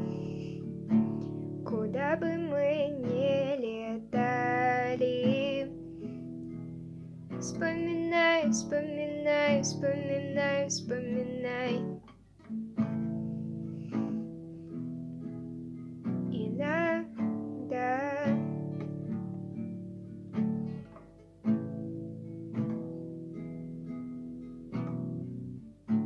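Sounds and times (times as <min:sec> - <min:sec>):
acoustic guitar chords: 0:00.0 - 0:26.0.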